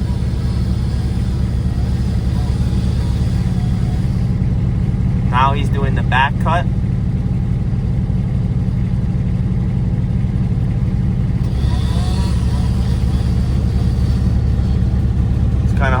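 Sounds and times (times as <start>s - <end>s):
distant chainsaw cutting: 0.0s - 4.6s, 11.3s - 16.0s
utility vehicle engine humming: 0.0s - 16.0s.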